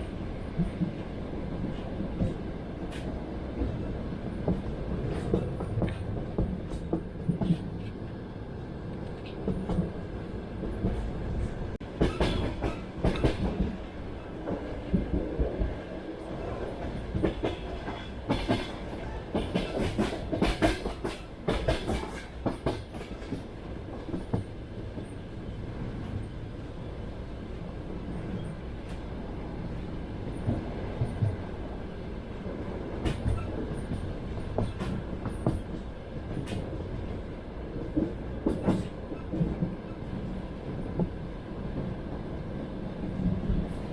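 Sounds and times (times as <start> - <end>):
train wheels clattering over rails: 11.8 - 25.2, 32.8 - 36.7, 37.9 - 39.9.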